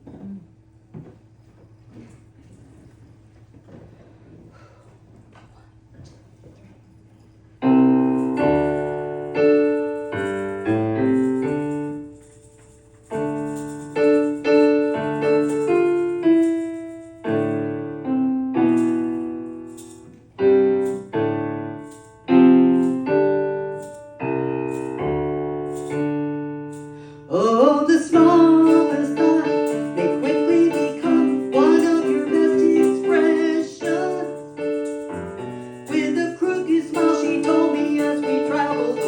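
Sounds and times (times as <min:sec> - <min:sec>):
solo piano chords: 0:07.5 - 0:39.0.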